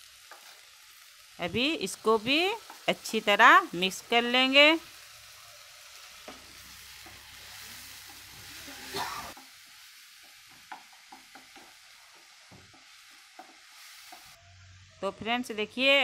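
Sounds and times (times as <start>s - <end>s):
onions frying with steady sizzle: 0.0s - 16.0s
spatula knocking against pan: 10.2s - 11.8s.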